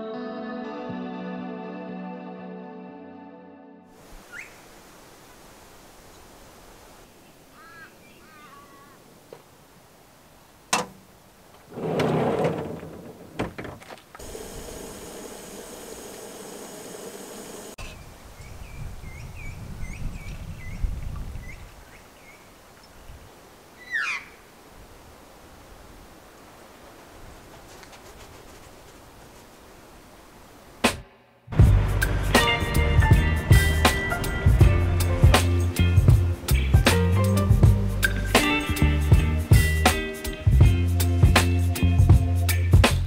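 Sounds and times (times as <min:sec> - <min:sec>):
steady hiss: 0:03.9 - 0:12.0, 0:14.1 - 0:18.6
falling bird call: 0:04.2 - 0:04.6, 0:07.5 - 0:09.1, 0:23.8 - 0:24.4
birds chirping: 0:04.2 - 0:04.7, 0:07.1 - 0:09.1
hissing burst: 0:14.2 - 0:17.8.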